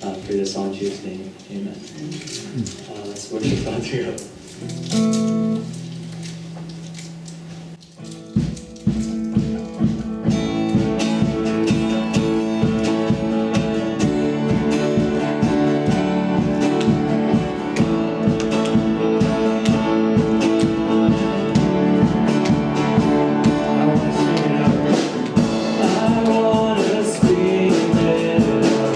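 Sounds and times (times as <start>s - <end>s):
strummed acoustic guitar: 4.4s - 28.9s
band instruments playing: 7.8s - 28.9s.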